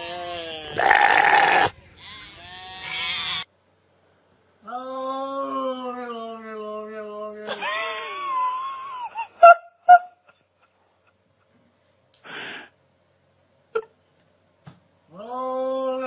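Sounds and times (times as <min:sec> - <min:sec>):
cat hissing: 0:00.7 - 0:01.7.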